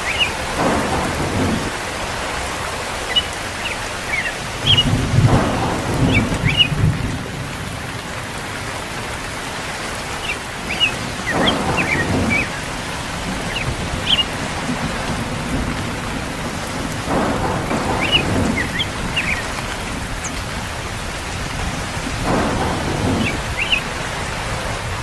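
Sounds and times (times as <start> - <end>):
distant thunder rolling: 0.0 - 25.0
steady rain falling: 0.0 - 25.0.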